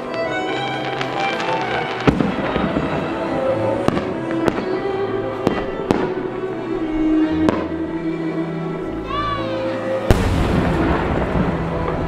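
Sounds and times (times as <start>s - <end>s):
fireworks sharp reports: 0.0s - 6.2s, 10.1s - 12.0s
music playing: 0.0s - 12.0s.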